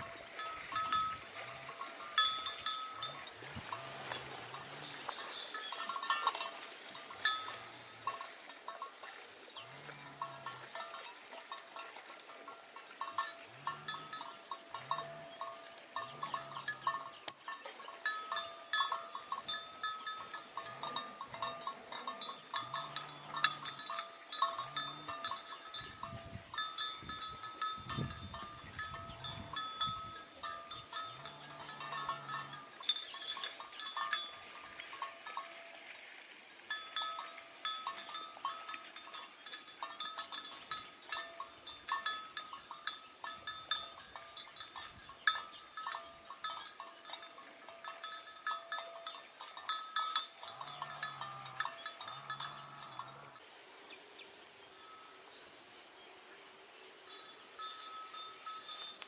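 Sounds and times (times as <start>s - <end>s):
steady high ringing tone: 0.0s - 35.9s
livestock bell clanking: 0.0s - 53.4s, 54.8s - 55.1s, 57.1s - 59.0s.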